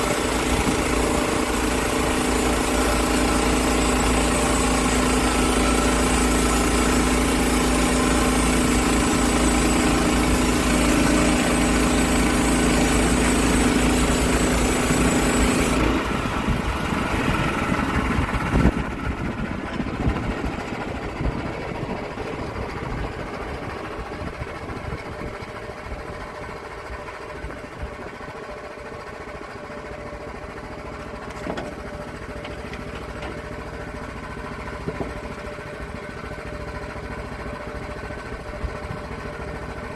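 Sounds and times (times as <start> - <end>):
small gasoline engine running: 0.0 - 39.9.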